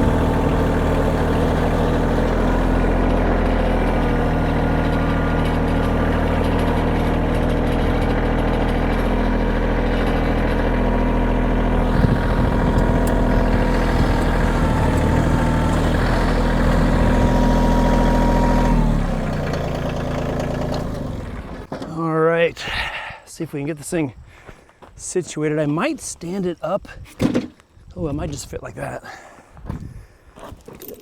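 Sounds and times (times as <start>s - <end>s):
tractor diesel engine running: 0.0s - 22.1s.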